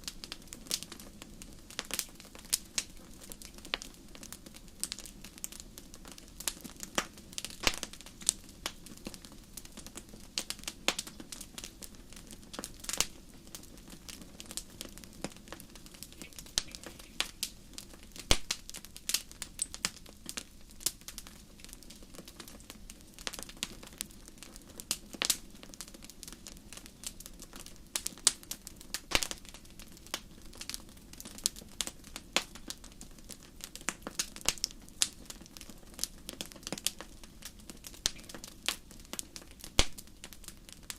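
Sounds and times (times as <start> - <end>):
fire crackling with pops: 0.0 - 40.9.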